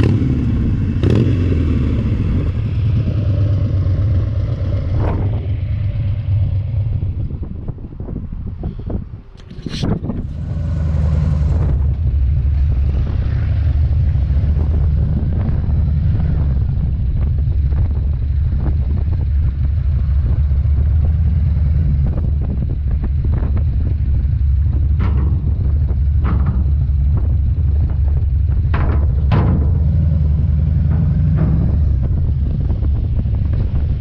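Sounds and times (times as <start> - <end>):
motorcycle engine idling: 0.0 - 34.0
short knocks: 24.6 - 33.7.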